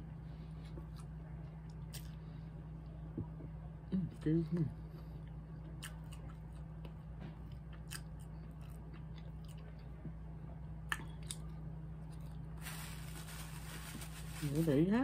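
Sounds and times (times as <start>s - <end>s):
steady low hum: 0.0s - 15.0s
person chewing fries: 0.6s - 2.2s, 5.2s - 10.2s, 10.9s - 12.8s.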